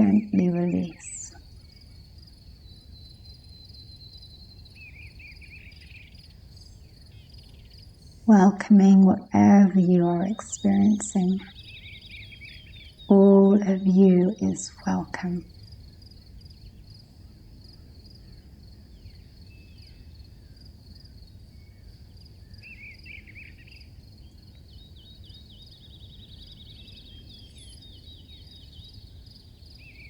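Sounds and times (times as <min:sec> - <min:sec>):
low background rumble: 0:00.0 - 0:01.4, 0:08.2 - 0:11.5
crickets chirping: 0:00.0 - 0:08.3, 0:14.2 - 0:30.0.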